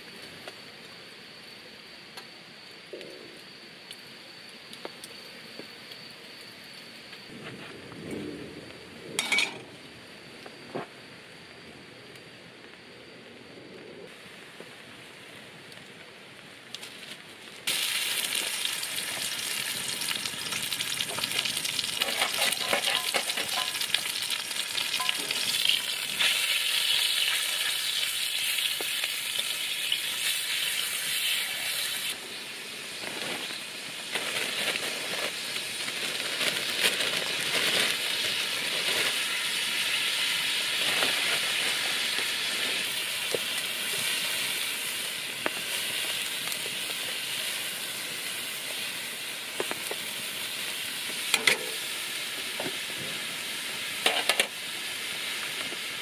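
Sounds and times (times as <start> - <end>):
stir-fry sizzling in a wok: 17.7 - 56.0.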